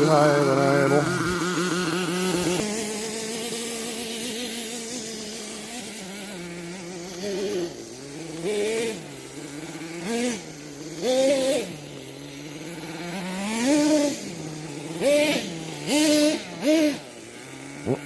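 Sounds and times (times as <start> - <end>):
small nitro engine idling: 0.0 - 18.0
engine throttle blips: 17.8 - 18.0.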